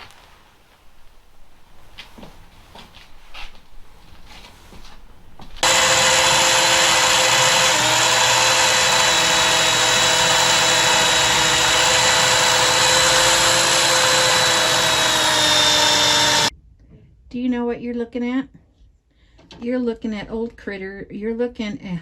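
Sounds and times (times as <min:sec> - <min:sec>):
electric motor machine running: 0:05.6 - 0:16.5.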